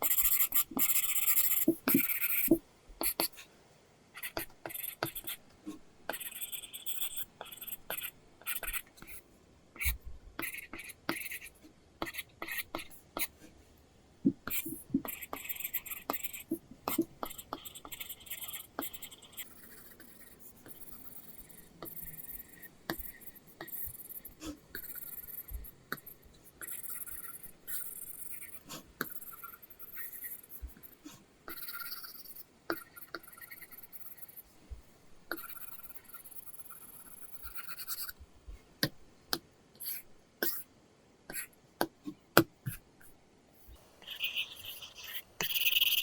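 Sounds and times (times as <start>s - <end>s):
pencil tip tapping screen: 0.0s - 3.3s, 14.2s - 40.6s
pencil sketching on screen: 0.0s - 3.5s, 4.2s - 13.7s, 14.3s - 38.7s, 39.8s - 40.7s, 41.3s - 46.0s.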